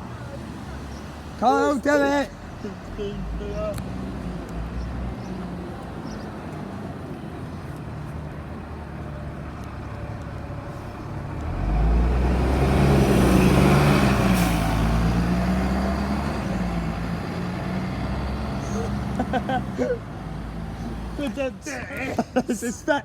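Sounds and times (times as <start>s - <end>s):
diesel bus engine: 0.0s - 23.0s.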